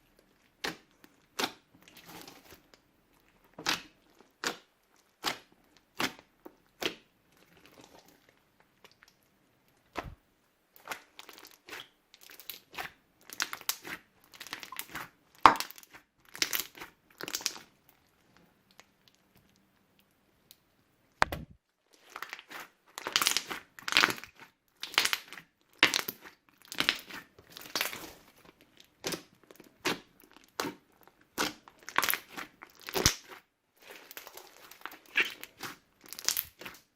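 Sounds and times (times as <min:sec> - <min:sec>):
slime squished by hand: 0:03.5 - 0:09.2, 0:21.2 - 0:28.4, 0:29.0 - 0:36.9.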